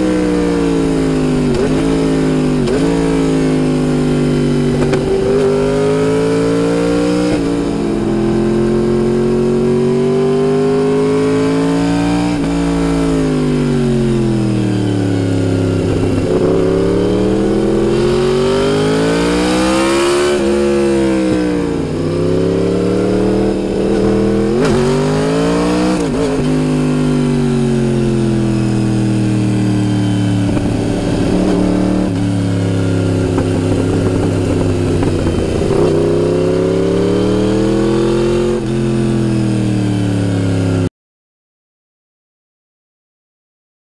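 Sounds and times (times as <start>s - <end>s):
motorcycle engine while riding: 0.0s - 40.9s
wind noise: 15.7s - 26.6s, 30.3s - 37.9s.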